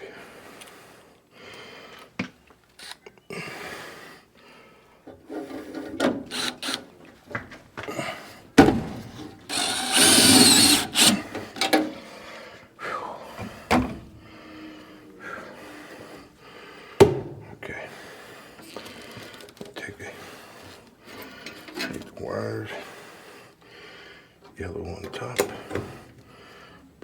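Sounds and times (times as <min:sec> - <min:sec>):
rasping scrape of sheet metal: 0:09.5 - 0:11.3.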